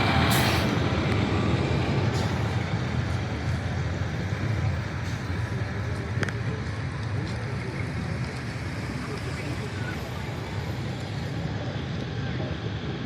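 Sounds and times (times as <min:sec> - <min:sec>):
heavy vehicle engine rumbling: 0:00.0 - 0:13.0.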